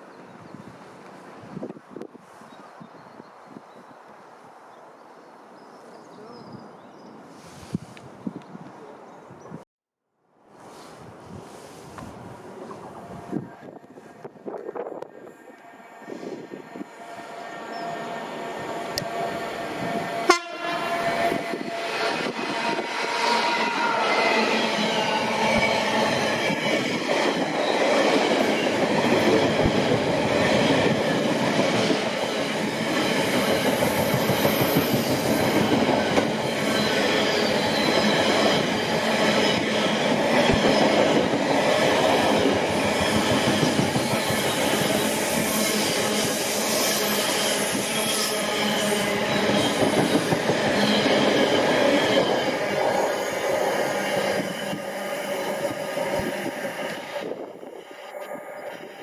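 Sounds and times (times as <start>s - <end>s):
high squealing of train wheels: 15.2s - 59.0s.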